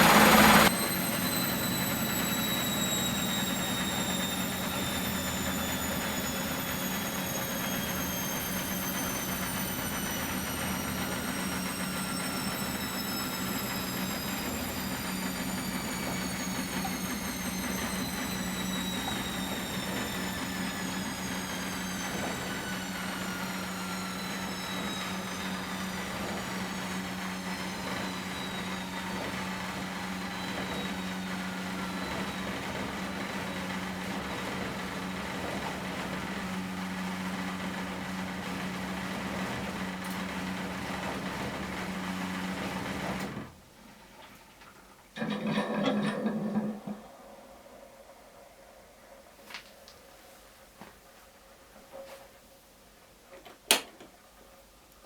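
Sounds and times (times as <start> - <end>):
washing machine motor whine falling: 0.0 - 50.9.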